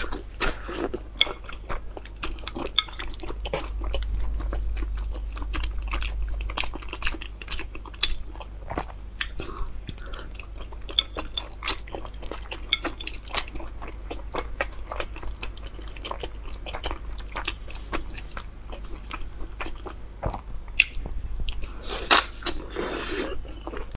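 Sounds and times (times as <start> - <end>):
chewing with wet mouth smacks: 0.0 - 23.9
slurp: 21.8 - 23.4.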